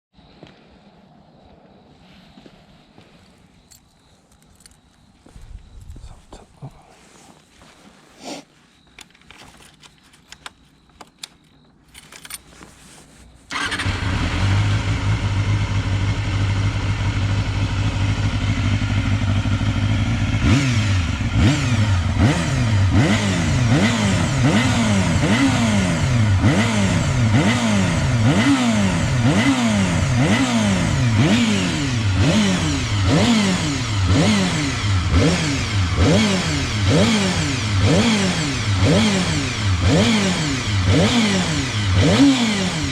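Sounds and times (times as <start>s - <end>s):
motorcycle engine idling and revving: 13.5s - 42.9s.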